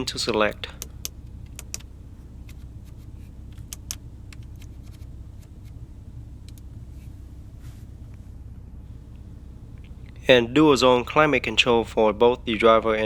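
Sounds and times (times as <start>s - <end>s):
car cabin hum: 0.0s - 13.0s
control knob clicks: 0.7s - 5.8s.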